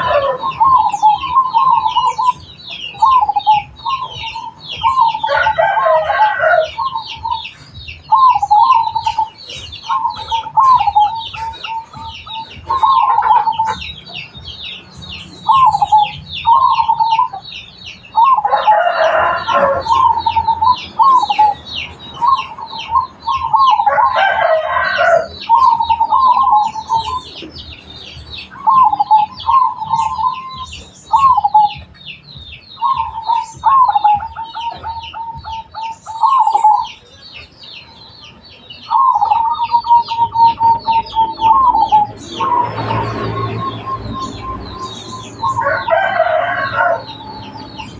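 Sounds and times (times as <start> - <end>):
rooster crowing: 0.0 - 1.8, 3.8 - 7.1, 18.2 - 21.4, 23.5 - 26.2, 41.6 - 47.9
doves cooing: 0.0 - 37.0, 38.9 - 47.9
small birds twittering: 0.0 - 47.9.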